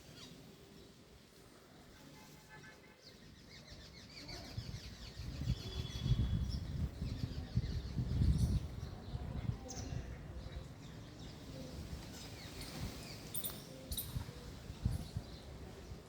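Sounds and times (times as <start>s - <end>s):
birds chirping: 3.1s - 14.4s.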